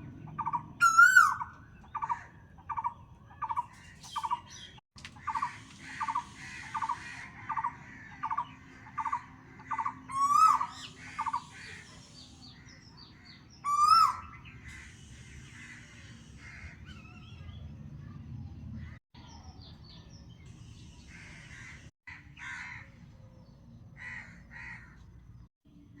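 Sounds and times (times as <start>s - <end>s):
bird chirps: 0.1s - 16.2s
loud rising bird calls: 5.2s - 11.9s, 12.7s - 17.4s.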